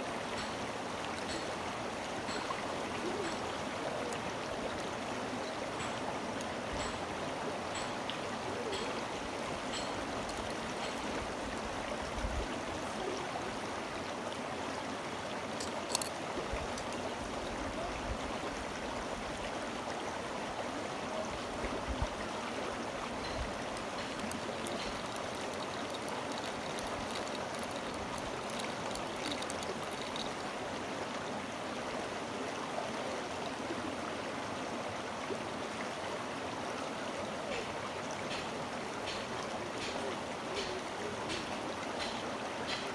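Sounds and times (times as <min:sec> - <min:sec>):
stream water flowing: 0:00.0 - 0:42.9
light clicks: 0:08.7 - 0:11.3, 0:15.6 - 0:17.0, 0:23.2 - 0:30.4.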